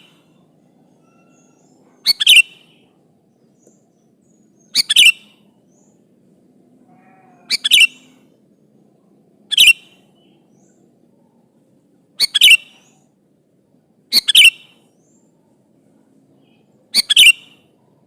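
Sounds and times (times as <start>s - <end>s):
bulbul calling: 1.0s - 2.9s, 3.5s - 6.0s, 7.1s - 8.2s, 9.5s - 10.8s, 12.2s - 13.1s, 14.1s - 15.2s, 16.5s - 17.7s.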